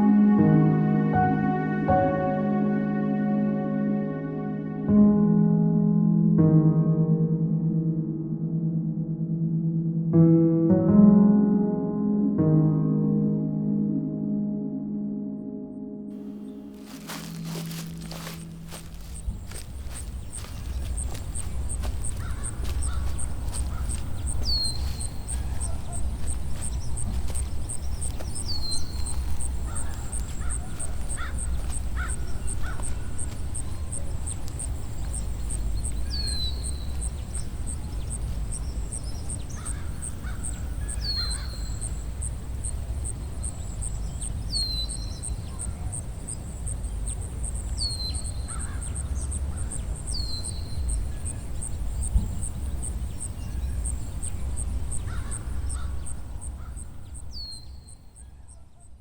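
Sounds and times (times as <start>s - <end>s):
crows cawing: 16.8s - 33.6s, 39.4s - 41.8s, 48.4s - 49.8s, 54.9s - 56.9s.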